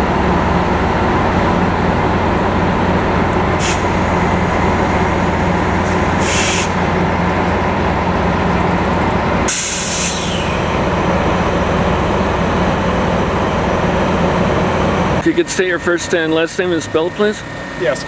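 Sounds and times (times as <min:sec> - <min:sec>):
diesel engine idling: 0:00.0 - 0:18.0
compressed air hissing: 0:03.6 - 0:04.0, 0:05.8 - 0:06.8, 0:09.5 - 0:10.7.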